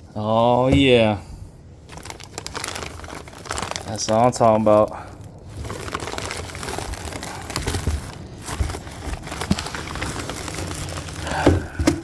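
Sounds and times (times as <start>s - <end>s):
packing material rustling: 0.5s - 12.0s.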